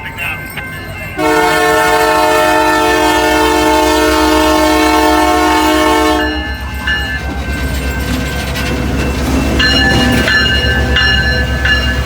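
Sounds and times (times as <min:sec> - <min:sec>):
rumble of passing train: 0:00.0 - 0:12.0
locomotive air horn chord: 0:01.2 - 0:06.6.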